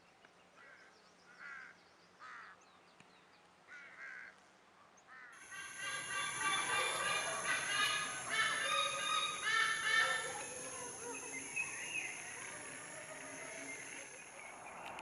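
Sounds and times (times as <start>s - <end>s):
bird calling: 5.4s - 15.0s
steady high whine: 5.4s - 15.0s.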